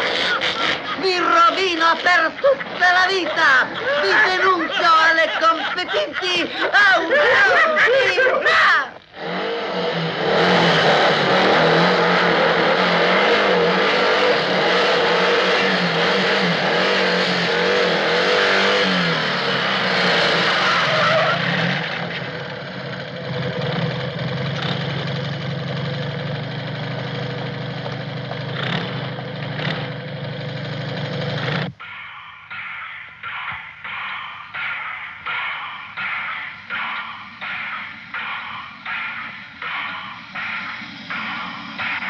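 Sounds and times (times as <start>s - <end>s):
motorcycle engine running: 9.0s - 31.8s, 35.3s - 42.0s.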